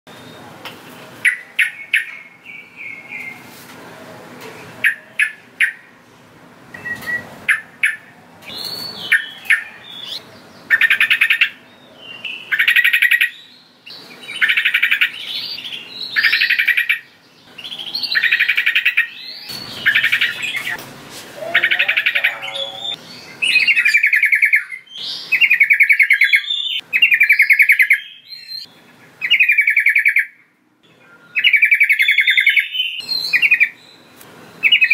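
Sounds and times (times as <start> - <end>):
bulbul singing: 6.7 - 20.8, 21.4 - 34.9.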